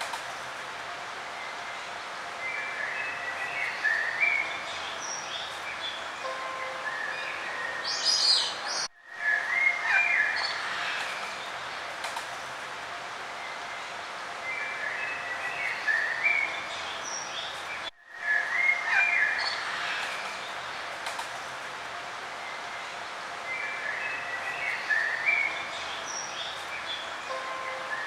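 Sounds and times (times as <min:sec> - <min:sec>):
outdoor background hiss: 0:00.0 - 0:28.0
songbirds singing: 0:01.3 - 0:12.0, 0:13.4 - 0:21.0, 0:22.3 - 0:28.0.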